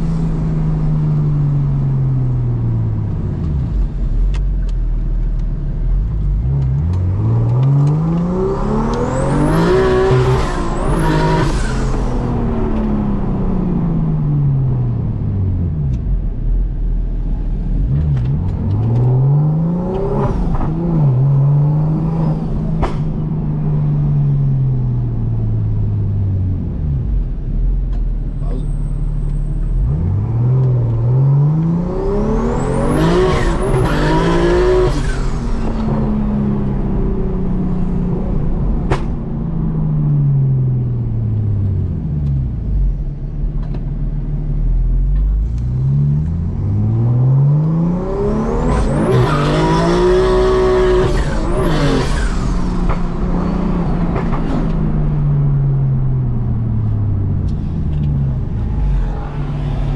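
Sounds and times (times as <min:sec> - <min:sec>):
car engine accelerating hard: 0:00.0 - 0:59.9
exhaust crack: 0:48.6 - 0:59.9.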